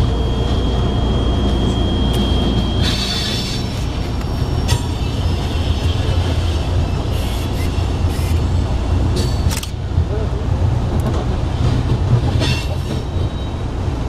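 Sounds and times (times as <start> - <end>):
train rumbling: 0.0 - 14.0
train wheels clacking: 9.1 - 9.8, 11.0 - 13.5.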